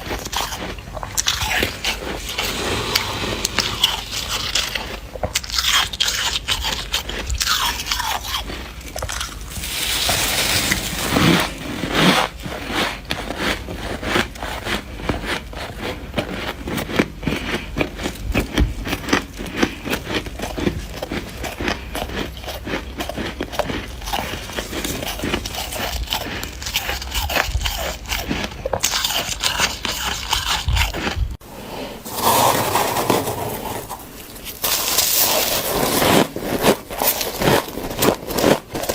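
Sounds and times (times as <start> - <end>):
frost crunching when chewed: 0.0 - 31.4, 33.0 - 38.9
scraping: 1.1 - 5.6, 31.4 - 38.5.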